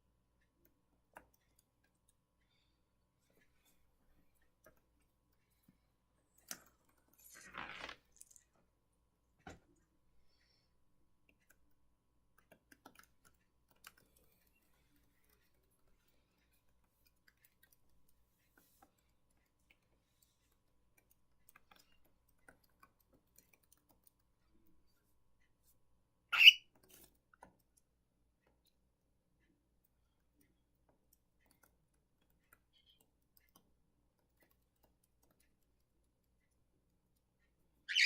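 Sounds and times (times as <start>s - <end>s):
bird chirp: 26.3s - 26.7s
birds ticking and tapping: 26.3s - 28.9s, 29.5s - 38.0s.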